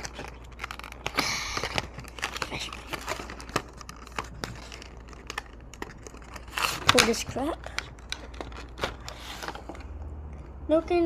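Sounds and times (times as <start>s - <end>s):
packaging crinkling and rustling: 0.0s - 10.5s.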